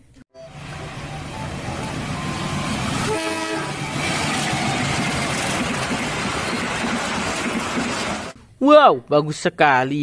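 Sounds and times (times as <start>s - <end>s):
train horn blast: 0.4s - 4.4s
diesel locomotive engine: 0.4s - 8.4s.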